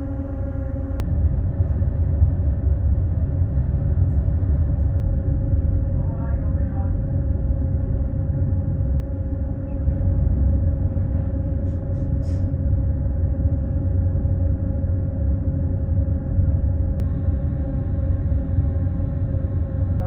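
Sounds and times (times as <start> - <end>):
vehicle engine rumble: 0.0 - 20.0.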